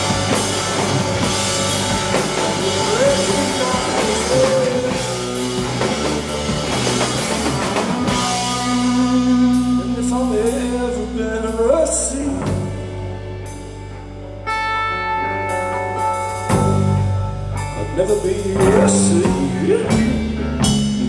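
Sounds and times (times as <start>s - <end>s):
drums: 0.0s - 21.0s
guitar: 0.0s - 21.0s
live rock band playing: 0.0s - 21.0s
person singing: 1.9s - 5.5s, 8.2s - 12.7s, 17.7s - 20.4s.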